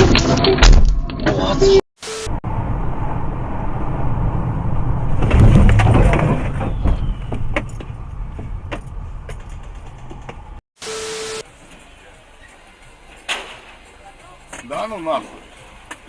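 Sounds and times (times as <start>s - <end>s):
motor vehicle rumbling: 1.4s - 10.6s.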